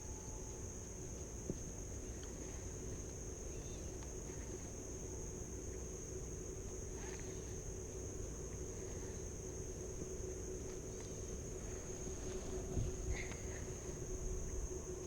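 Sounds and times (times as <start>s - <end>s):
insect drone: 0.0s - 15.0s
low wind rumble: 11.6s - 15.0s.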